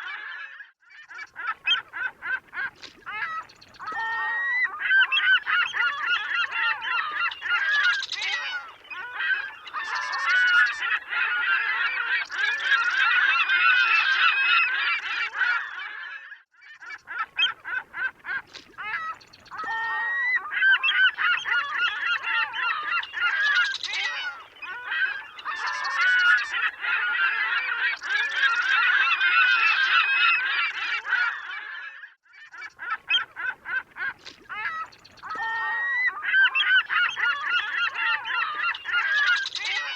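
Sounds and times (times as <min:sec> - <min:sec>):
seagulls calling: 0:00.0 - 0:39.9.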